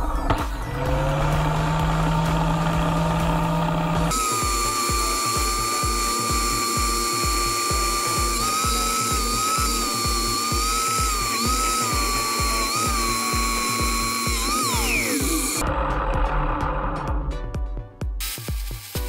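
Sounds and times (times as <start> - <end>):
music with steady beat: 0.1 - 19.0
angle grinder saw blade whining: 0.6 - 17.1.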